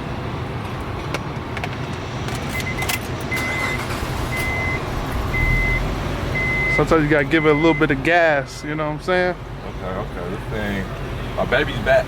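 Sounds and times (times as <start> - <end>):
dashboard warning chime beeping: 2.5 - 8.9
car engine idling: 3.5 - 12.0.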